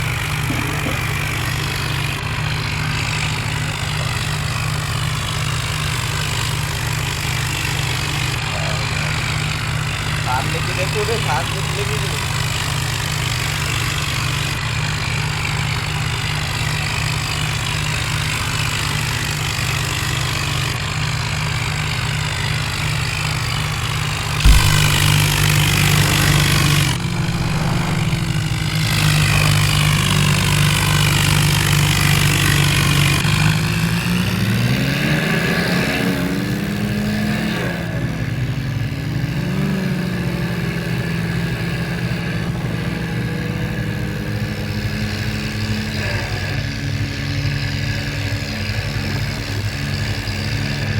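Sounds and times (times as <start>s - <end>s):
diesel tractor engine under load: 21.7s - 35.1s
sharp knock: 24.5s - 29.0s.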